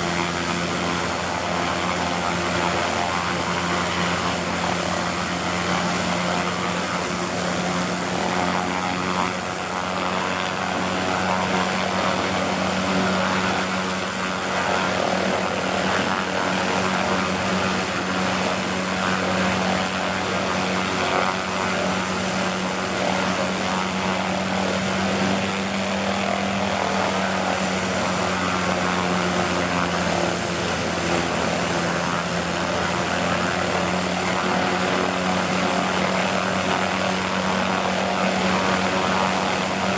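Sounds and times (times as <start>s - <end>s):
helicopter rotor and engine roar: 0.0s - 39.9s
helicopter turbine whine: 0.0s - 39.9s.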